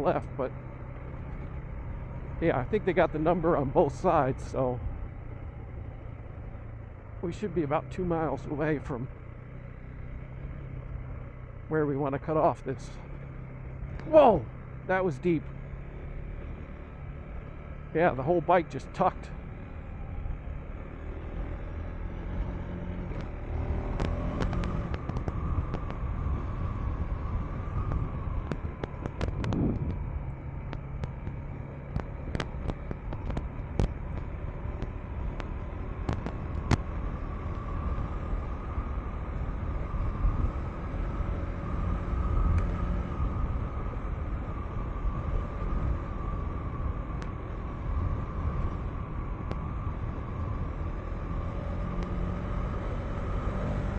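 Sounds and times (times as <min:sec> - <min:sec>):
dirt bike engine running: 0:00.0 - 0:42.5
clicks and knocks on rough ground: 0:23.1 - 0:26.1, 0:27.8 - 0:37.6.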